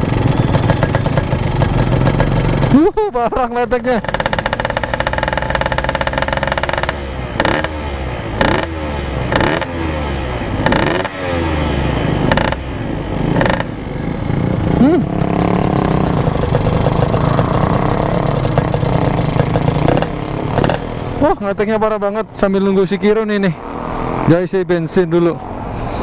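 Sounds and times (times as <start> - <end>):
engine knocking: 0.0 - 2.8, 3.9 - 9.7, 12.1 - 14.6, 15.2 - 21.3
motorcycle engine revving: 0.0 - 24.8.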